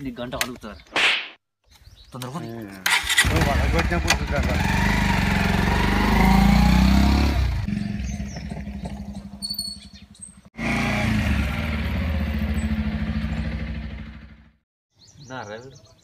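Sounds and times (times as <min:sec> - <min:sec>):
birds chirping: 0:00.0 - 0:10.5, 0:11.2 - 0:14.3, 0:14.9 - 0:16.0
motorcycle engine running: 0:03.2 - 0:14.6.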